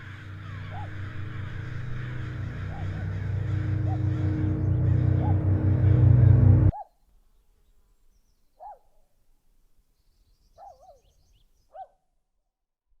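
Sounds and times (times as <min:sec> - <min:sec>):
background music: 0:00.0 - 0:06.7.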